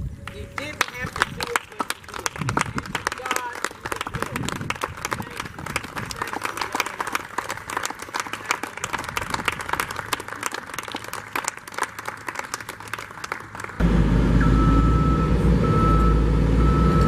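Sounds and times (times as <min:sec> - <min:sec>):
crowd applauding: 0:00.3 - 0:13.8
heavy machine engine rumble: 0:13.8 - 0:17.0.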